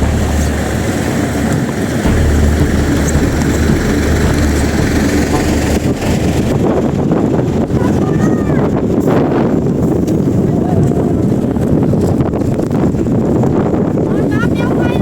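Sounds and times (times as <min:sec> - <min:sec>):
blizzard wind buffeting microphone: 0:00.0 - 0:15.0.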